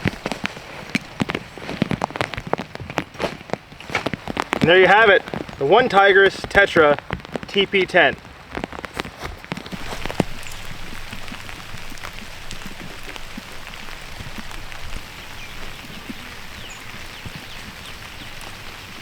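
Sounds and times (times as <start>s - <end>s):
raindrops ticking: 0.0s - 19.0s
steady rain falling: 0.0s - 19.0s.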